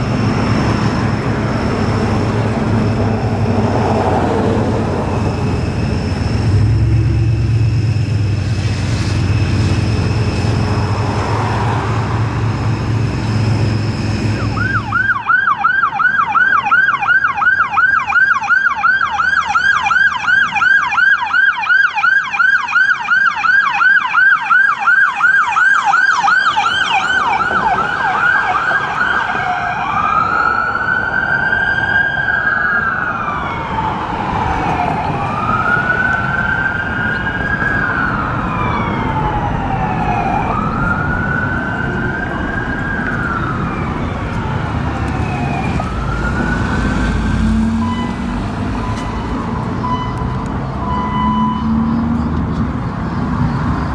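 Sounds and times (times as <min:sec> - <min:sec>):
electronic siren yelp and wail: 0:00.0 - 0:11.8, 0:13.9 - 0:52.0
vehicle rumble: 0:00.0 - 0:15.4, 0:28.9 - 0:53.9.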